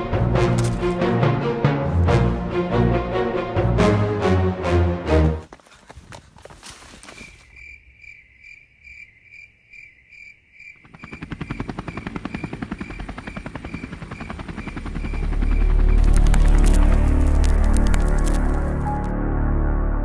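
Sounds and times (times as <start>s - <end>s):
cricket chirping: 6.4s - 19.0s
helicopter rotor beating: 10.8s - 19.1s.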